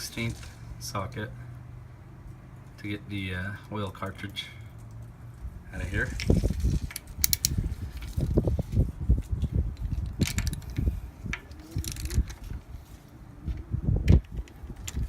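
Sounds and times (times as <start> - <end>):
wind buffeting microphone: 5.4 - 15.0
socket wrench clicking: 6.9 - 7.6.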